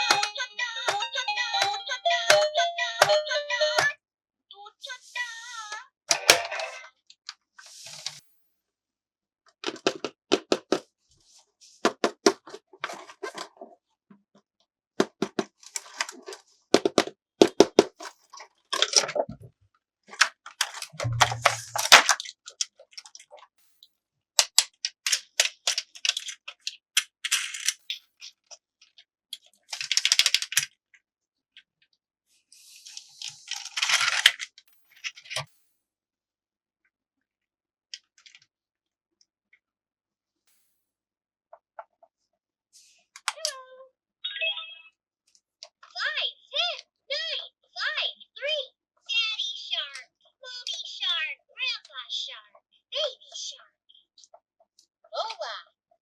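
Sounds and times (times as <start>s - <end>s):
plastic toy pieces clacking: 9.6s - 10.8s, 15.0s - 19.2s, 20.1s - 23.4s, 24.4s - 30.8s, 32.9s - 35.5s.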